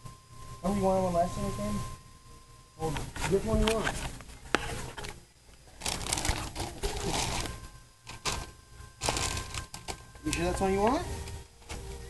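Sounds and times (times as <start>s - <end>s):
handling rustling and scraping: 3.0s - 5.2s.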